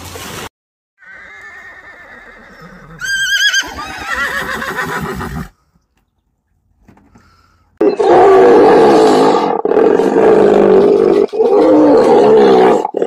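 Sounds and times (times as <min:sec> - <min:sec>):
horse whinnying: 0:01.0 - 0:05.5.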